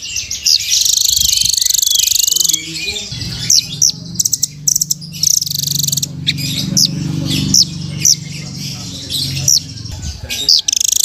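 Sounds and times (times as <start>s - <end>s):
nuthatch calling with buzzy trills: 0.0s - 11.0s
steady low drone: 3.0s - 10.5s.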